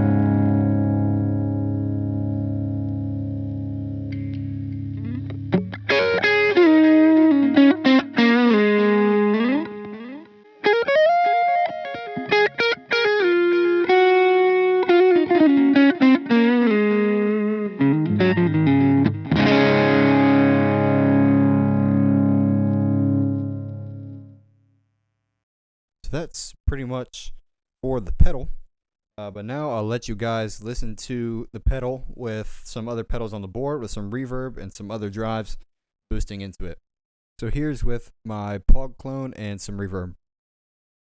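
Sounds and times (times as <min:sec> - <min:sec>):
overdriven electric guitar: 0:00.0 - 0:24.4.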